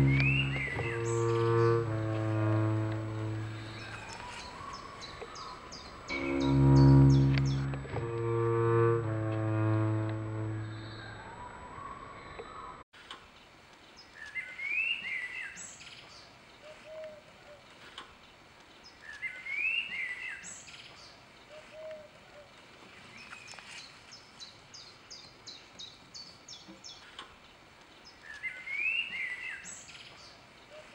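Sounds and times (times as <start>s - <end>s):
bird low note: 0.0s - 12.0s
whistled birdsong phrase: 14.2s - 15.9s, 19.0s - 20.8s, 28.1s - 30.0s.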